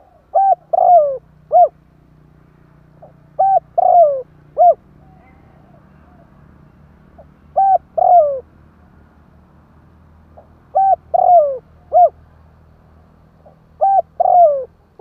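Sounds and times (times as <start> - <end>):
dove cooing: 0.0 - 1.8, 3.0 - 6.4, 7.2 - 8.5, 10.4 - 12.2, 13.4 - 15.0.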